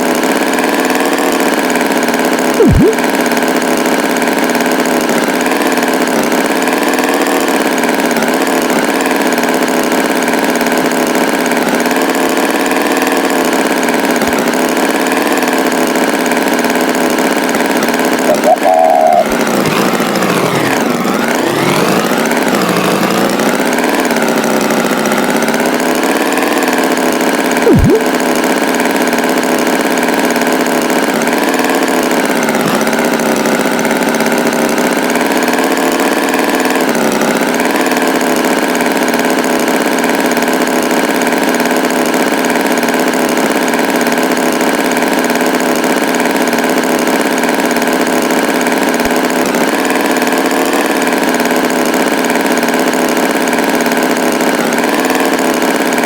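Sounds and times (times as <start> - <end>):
tractor engine running: 0.0 - 56.0
sharp upward chirp: 18.3 - 22.0, 27.7 - 28.1.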